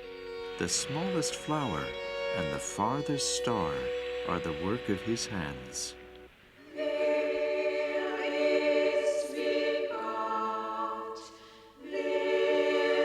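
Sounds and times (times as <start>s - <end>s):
choir singing sustained chords: 0.0s - 13.0s.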